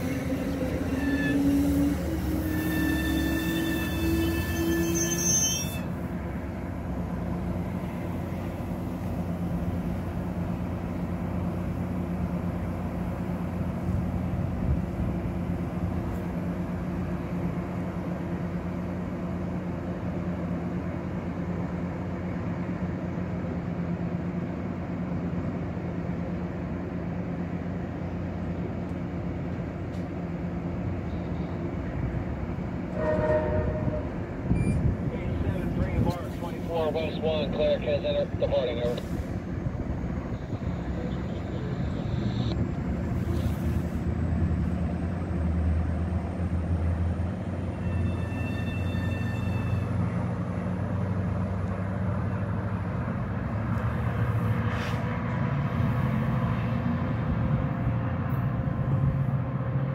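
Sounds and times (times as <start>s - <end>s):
diesel locomotive engine rumble: 0.0s - 59.9s
train horn blast: 32.9s - 34.2s.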